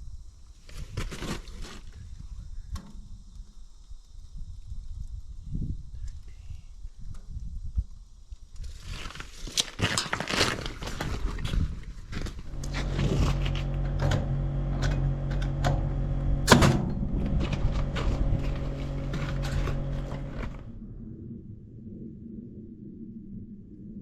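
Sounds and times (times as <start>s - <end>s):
motor humming: 12.4s - 20.9s
knocks and clicks: 12.5s - 20.7s
sharp bang: 12.6s - 20.8s.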